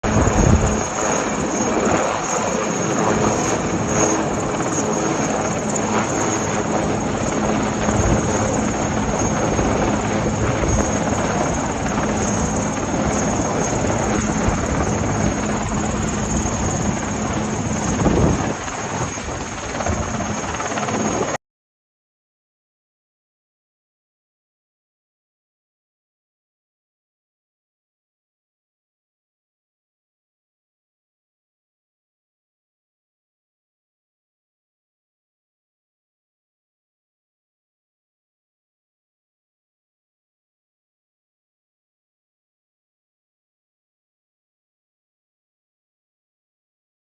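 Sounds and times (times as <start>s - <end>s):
helicopter rotor and engine: 0.0s - 21.4s.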